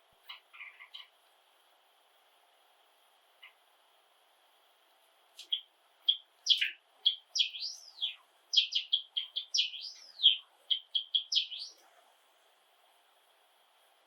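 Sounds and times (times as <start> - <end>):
sparrow singing: 5.4 - 11.8.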